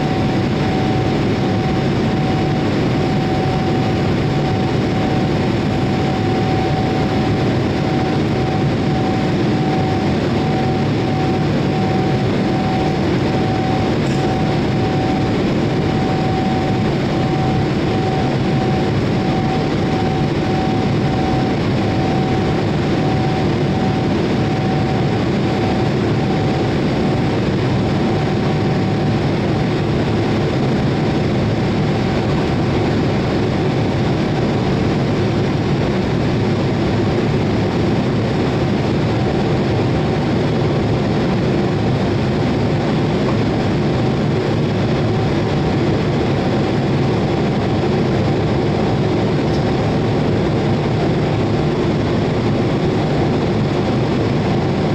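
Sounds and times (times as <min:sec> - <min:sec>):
jet engine noise: 0:00.0 - 0:54.9.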